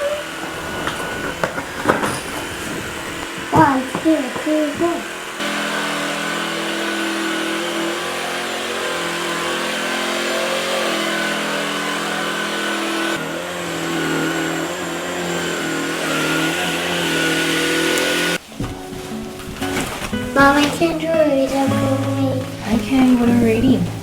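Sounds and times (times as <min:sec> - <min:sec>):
motor running: 0:00.0 - 0:18.4.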